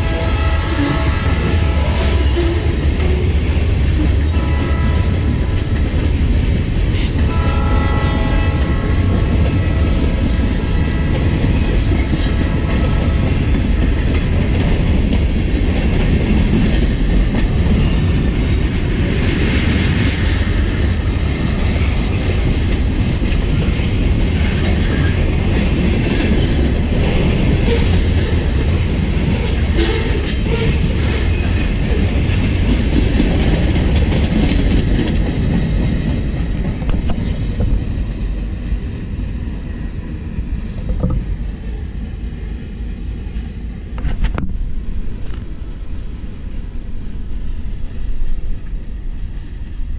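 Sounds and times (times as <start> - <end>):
freight train wheels rumbling: 0.0 - 49.9
high wheel squeal: 17.4 - 19.6.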